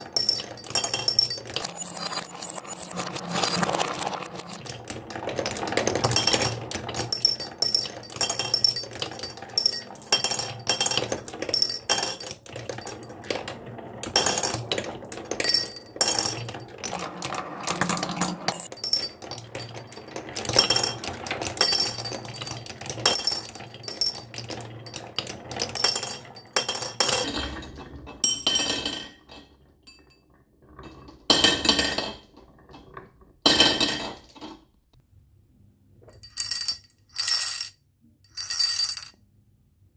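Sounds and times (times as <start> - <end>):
marbles clattering down wooden track: 0.0 - 27.9, 38.3 - 39.1.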